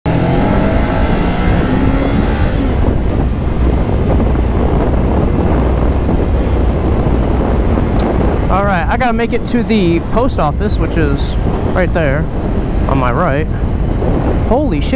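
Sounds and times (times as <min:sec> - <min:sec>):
motorcycle engine revving: 0:00.0 - 0:08.9
wind rush on microphone: 0:00.1 - 0:14.9.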